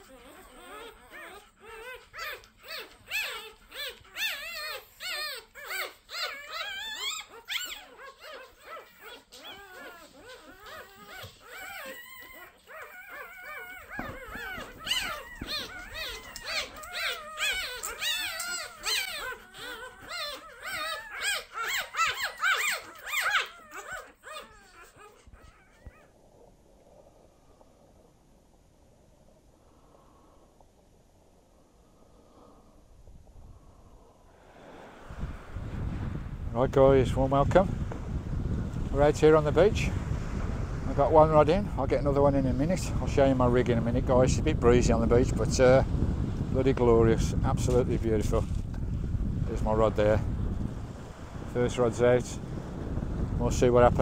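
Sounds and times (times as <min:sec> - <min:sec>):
puppies squeaking and whimpering: 0:00.0 - 0:26.1.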